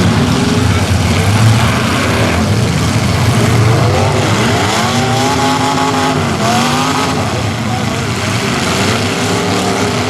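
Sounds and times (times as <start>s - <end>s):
car engines revving hard: 0.0s - 10.0s
din of running engines: 0.0s - 10.0s.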